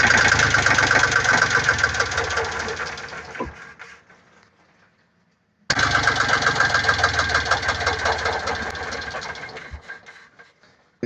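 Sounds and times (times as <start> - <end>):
diesel engine knocking: 0.0 - 3.8, 5.7 - 10.4.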